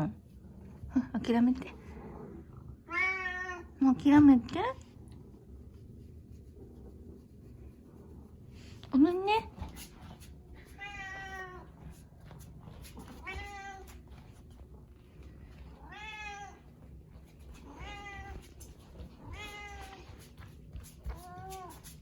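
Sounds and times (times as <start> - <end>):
cat meowing: 2.9 - 3.7, 10.8 - 11.7, 13.2 - 13.9, 15.8 - 16.6, 17.7 - 18.4, 19.3 - 20.0.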